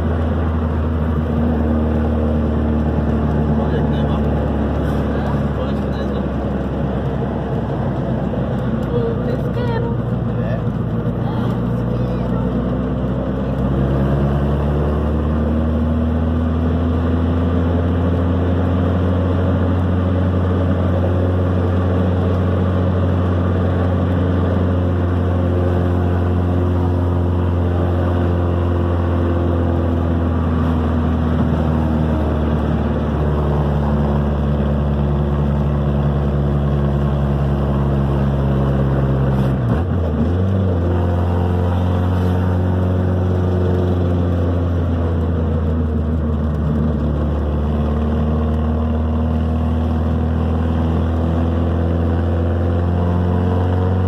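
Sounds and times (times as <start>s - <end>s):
car engine drone from inside cabin: 0.0s - 54.0s.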